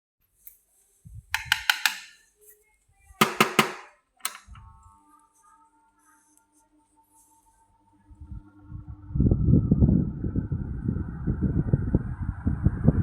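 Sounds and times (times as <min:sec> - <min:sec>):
fan switch clicks: 0:01.4 - 0:02.2, 0:03.2 - 0:04.6
faint fan motor hum: 0:07.8 - 0:13.0.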